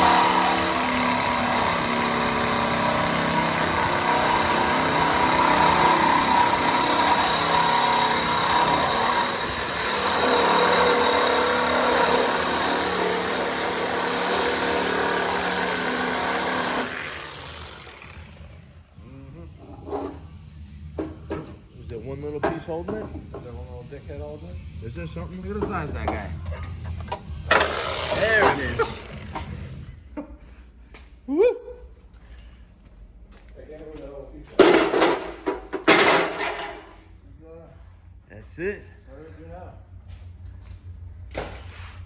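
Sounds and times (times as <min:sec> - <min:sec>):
power tool cutting sheet metal: 0:00.0 - 0:18.6, 0:27.5 - 0:29.6.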